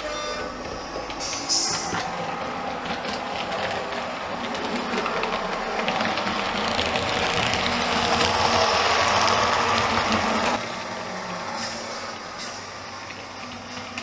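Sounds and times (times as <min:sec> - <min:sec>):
model train rumbling on track: 0:00.0 - 0:14.0
wheels clicking: 0:00.0 - 0:14.0.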